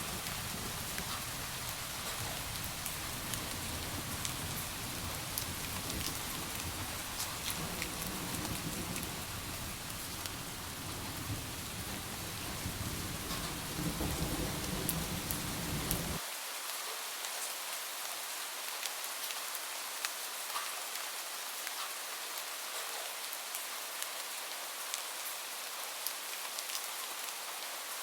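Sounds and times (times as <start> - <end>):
low thunder rumbling: 0.0 - 16.2
steady rain hiss: 0.0 - 28.0
single raindrops ticking: 0.2 - 16.2.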